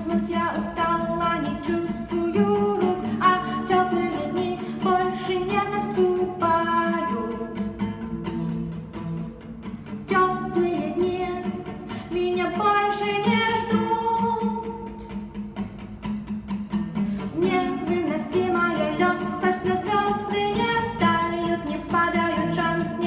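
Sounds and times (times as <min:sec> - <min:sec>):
plucked guitar: 0:00.0 - 0:23.0
person singing: 0:17.3 - 0:23.0.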